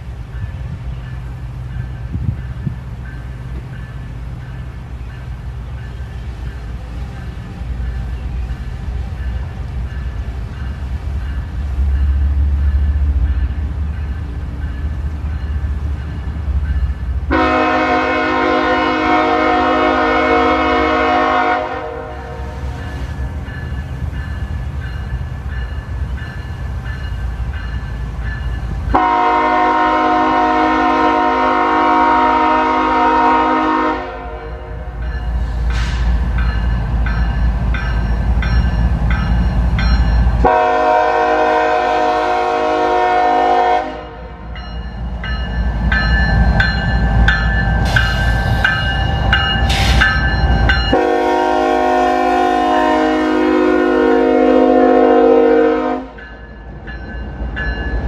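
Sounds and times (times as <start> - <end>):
passing train rumble: 0.0 - 58.0
locomotive horn blasts: 17.3 - 22.8, 28.9 - 35.0, 40.4 - 44.4, 50.9 - 56.2.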